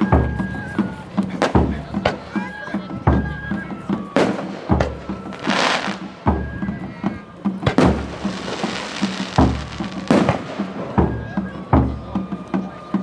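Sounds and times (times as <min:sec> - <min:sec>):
fireworks crackling hiss: 0:00.0 - 0:12.7
background music: 0:00.0 - 0:13.0
fireworks booming: 0:01.2 - 0:02.4, 0:03.7 - 0:12.1.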